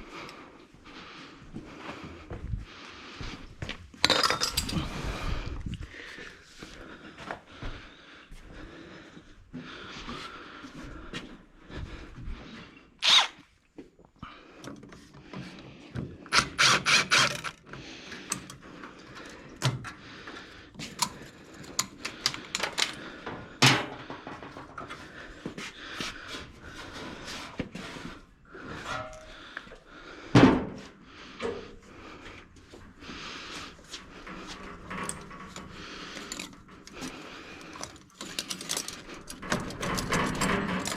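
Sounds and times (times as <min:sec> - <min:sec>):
metal tool clinks and knocks: 0:04.0 - 0:04.9, 0:34.9 - 0:40.9.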